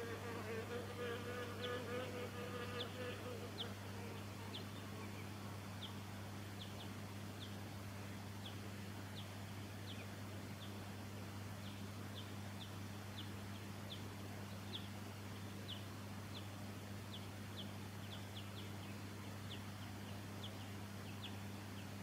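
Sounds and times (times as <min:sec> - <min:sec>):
insect buzzing: 0:00.0 - 0:06.8.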